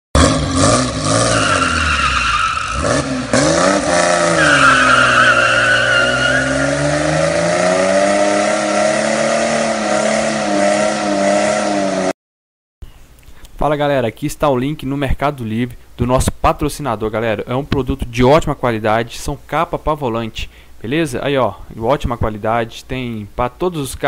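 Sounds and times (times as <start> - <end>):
car engine revving: 0.2 - 12.1
tyres squealing: 3.7 - 8.4.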